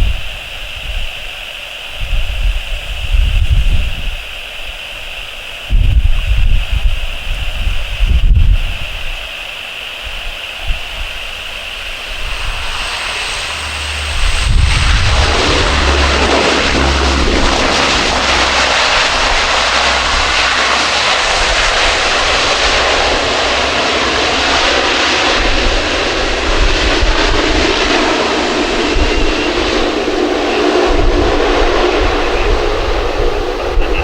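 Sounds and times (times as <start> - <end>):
airliner engines roaring: 0.0 - 34.0.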